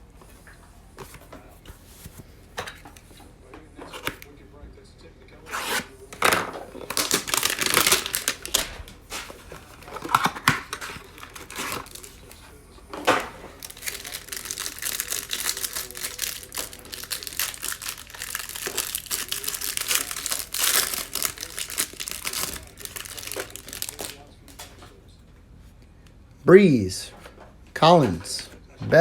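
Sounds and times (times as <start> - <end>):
plastic wrapping torn and crinkled: 5.7 - 12.4, 13.1 - 24.7.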